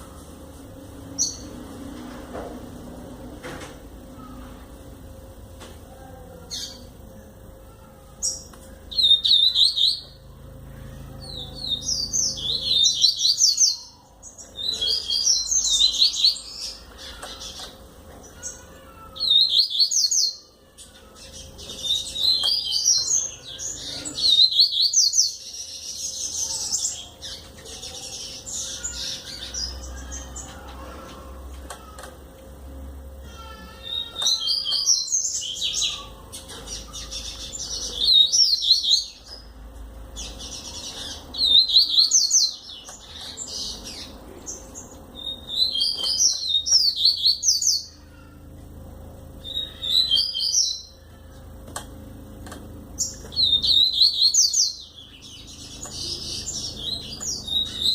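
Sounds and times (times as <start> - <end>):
bird singing high chirps: 8.2 - 10.3, 11.2 - 30.7, 33.4 - 39.5, 40.2 - 48.2, 49.4 - 51.0, 53.0 - 57.9.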